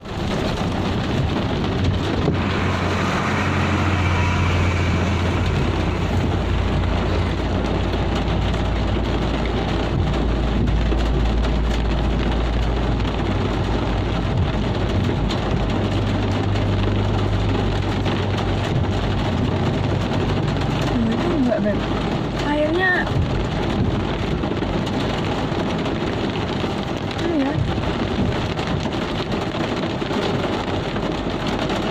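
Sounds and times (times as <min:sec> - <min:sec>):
deep rumble: 0:00.0 - 0:31.9
heavy rain falling: 0:00.0 - 0:31.9.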